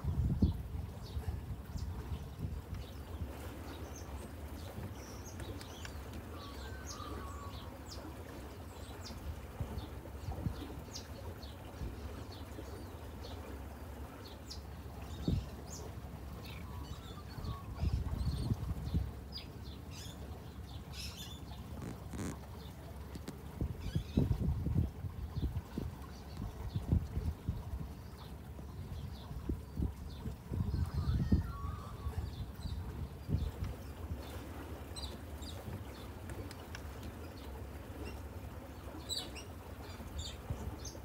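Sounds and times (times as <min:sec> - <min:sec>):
small birds chirping: 0:14.3 - 0:24.3.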